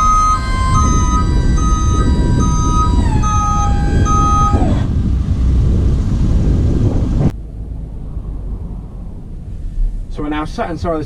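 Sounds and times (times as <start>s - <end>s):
warning beeper beeps: 0.0s - 4.9s
hydraulic pump whine: 0.0s - 6.5s.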